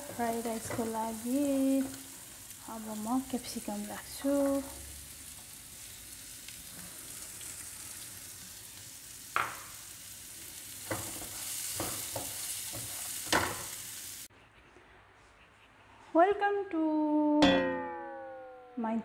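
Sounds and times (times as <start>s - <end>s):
vegetables sizzling in a frying pan: 0.0s - 14.3s.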